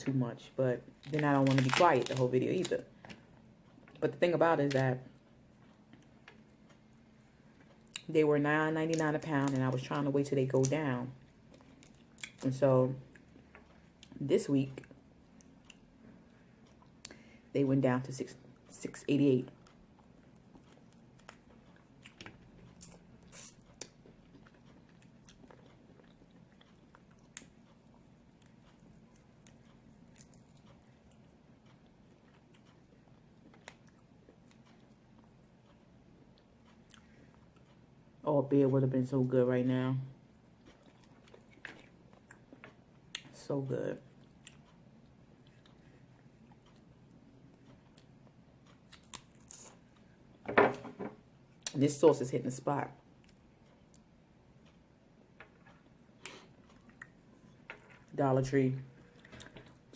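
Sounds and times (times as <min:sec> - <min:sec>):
quiet chewing: 0:05.2 - 0:08.1, 0:11.2 - 0:14.2, 0:14.8 - 0:17.3, 0:19.5 - 0:37.8, 0:40.4 - 0:43.3, 0:44.1 - 0:50.4, 0:53.1 - 0:58.2, 0:59.0 - 0:59.9.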